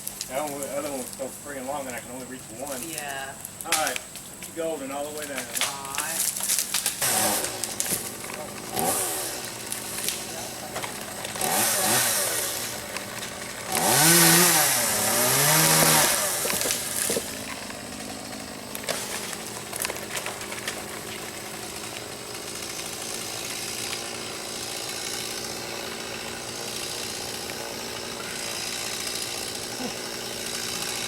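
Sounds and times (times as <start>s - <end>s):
two-stroke chainsaw revving: 6.8s - 31.0s.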